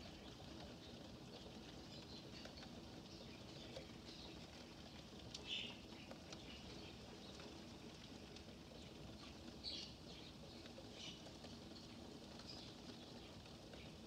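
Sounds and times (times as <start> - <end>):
faint rain patter: 0.0 - 14.0
light drip ticks: 0.0 - 14.0.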